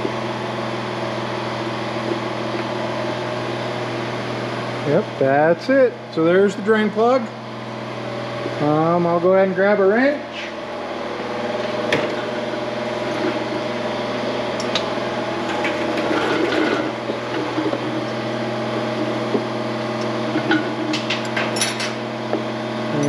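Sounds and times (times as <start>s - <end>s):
ventilation fan hum: 0.0s - 23.0s
hand tools clinking: 20.9s - 22.0s.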